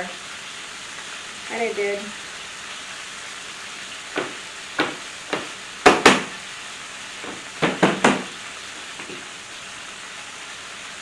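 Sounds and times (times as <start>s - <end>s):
chicken sizzling in oil: 0.0s - 4.0s, 9.2s - 11.0s
knife whacking garlic: 4.2s - 6.4s.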